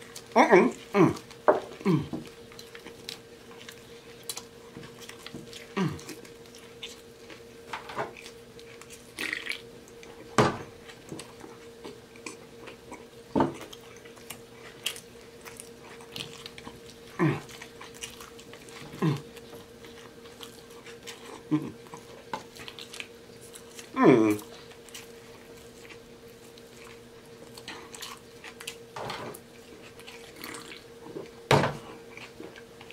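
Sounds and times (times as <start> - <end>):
chewing with wet smacking: 0.0 - 32.9.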